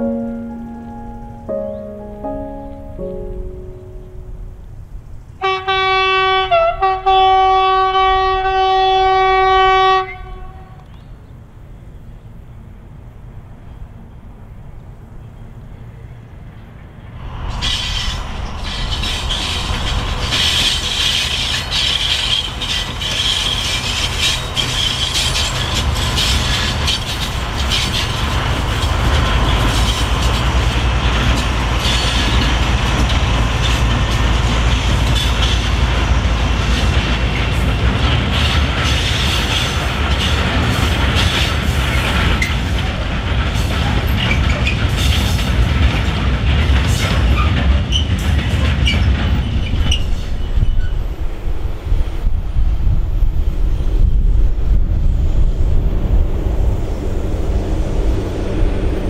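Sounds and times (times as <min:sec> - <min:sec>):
diesel locomotive engine rumble: 0:00.0 - 0:59.0
train wheel clatter: 0:17.4 - 0:51.4
high wheel squeal: 0:17.5 - 0:30.5, 0:31.8 - 0:35.7, 0:48.8 - 0:51.2.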